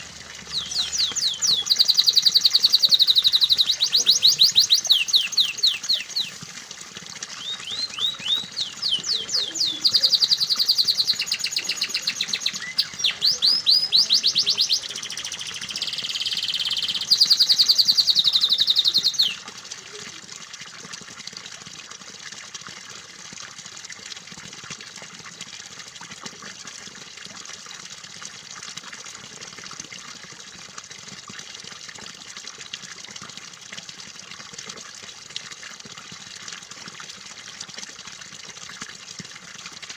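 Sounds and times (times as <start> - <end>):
running water: 0.0 - 39.9
canary singing trills: 0.4 - 6.4, 7.3 - 19.4.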